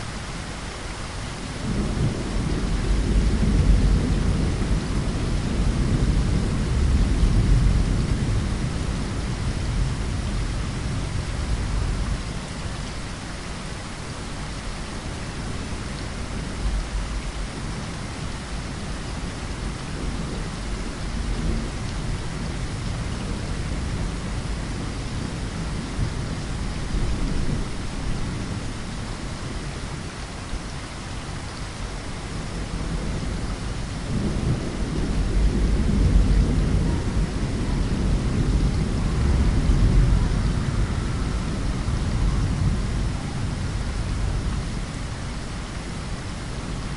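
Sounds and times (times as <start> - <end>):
steady rain: 0.0 - 46.9
thunder rumble: 1.6 - 12.7, 32.3 - 46.9.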